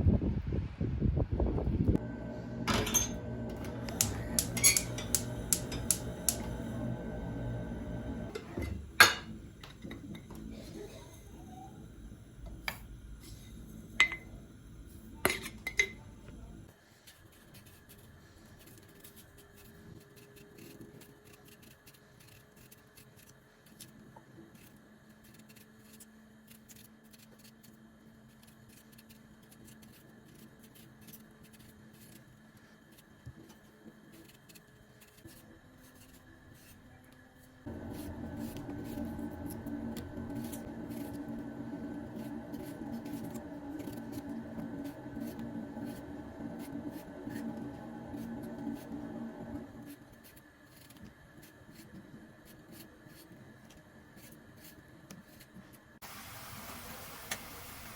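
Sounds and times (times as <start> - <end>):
faint steady hum: 1.8 - 57.9
glass and dishes clinking: 2.7 - 3.2, 4.1 - 6.0, 8.4 - 9.3, 14.0 - 14.3, 15.3 - 16.0.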